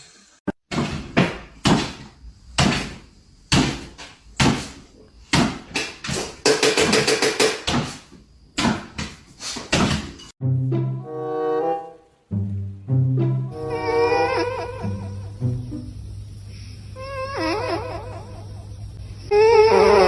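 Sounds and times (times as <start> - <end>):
sharp knocks and bangs: 0.7 - 10.3.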